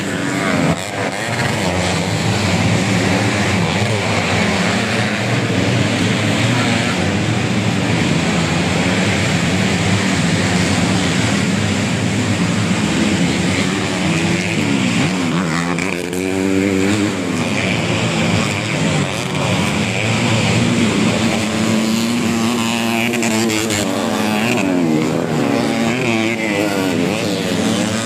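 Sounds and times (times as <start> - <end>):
motorcycles racing at high revs: 0.0 - 28.0.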